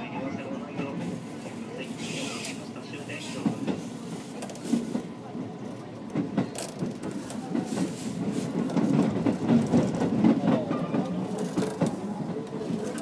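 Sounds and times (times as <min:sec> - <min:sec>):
train wheels rumbling: 0:00.0 - 0:13.0
wheels clacking over rail joints: 0:06.0 - 0:13.0.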